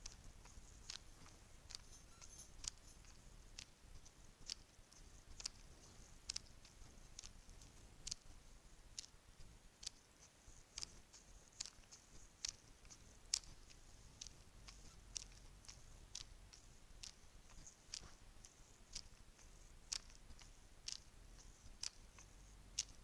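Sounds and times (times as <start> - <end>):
bracelets clicking: 1.7 - 3.7
faint jingle of bracelets: 1.8 - 3.1.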